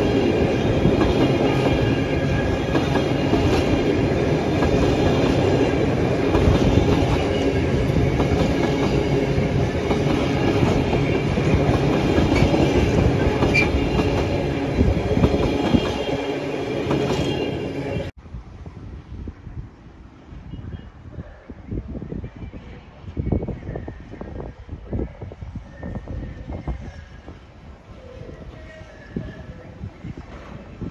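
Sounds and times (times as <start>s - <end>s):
freight train wheels clicking: 0.0s - 17.5s
faint wind: 0.0s - 30.9s.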